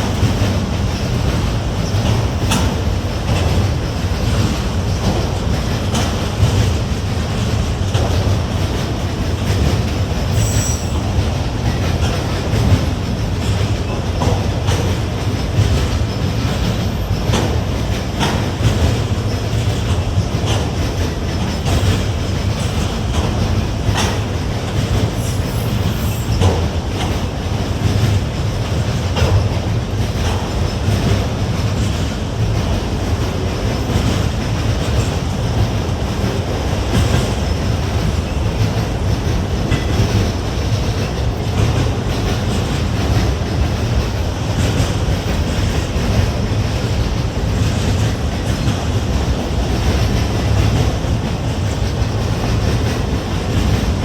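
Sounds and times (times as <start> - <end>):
freight train rumbling: 0.0 - 54.0
wheels clicking over rail joints: 0.0 - 54.0.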